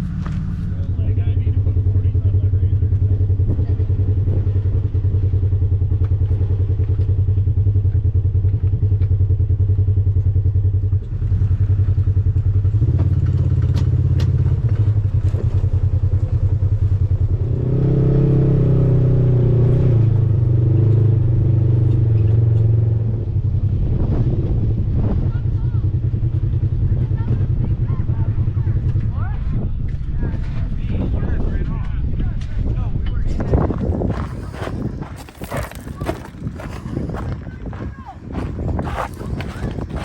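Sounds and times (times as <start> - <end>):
off-road vehicle engine running: 0.0 - 40.0
vehicle clatter and knocks: 12.8 - 16.4.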